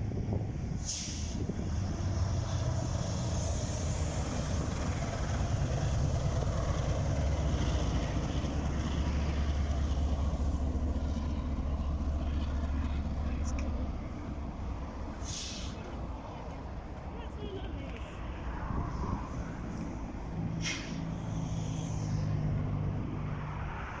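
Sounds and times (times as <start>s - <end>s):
train locomotive engine drone: 0.0s - 24.0s.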